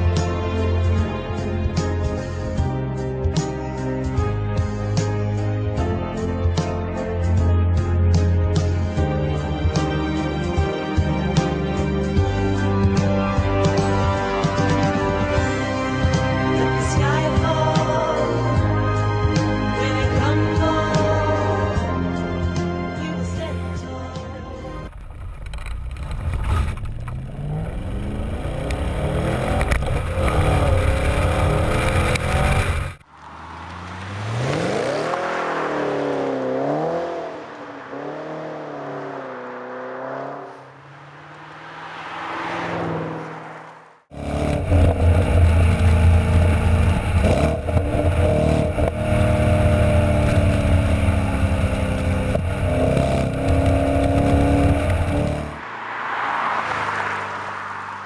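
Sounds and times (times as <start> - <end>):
car engine accelerating: 24.6 - 58.0.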